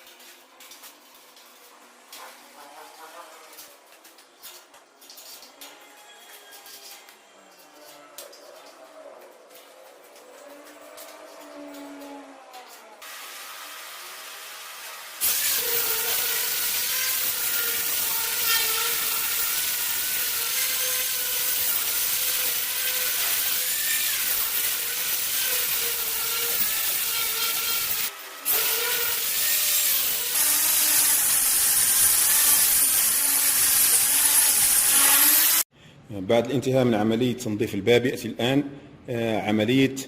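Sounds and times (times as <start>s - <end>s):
power sander whining on metal: 9.9s - 35.6s.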